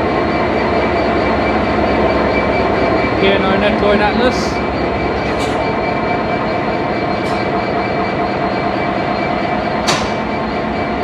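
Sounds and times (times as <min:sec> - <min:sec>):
diesel locomotive engine idling: 0:00.0 - 0:11.0.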